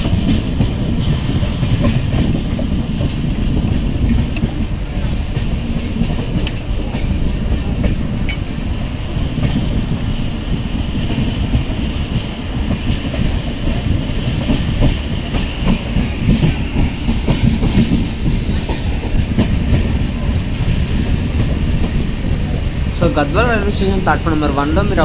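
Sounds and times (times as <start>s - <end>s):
train rumbling past: 0.0s - 25.0s.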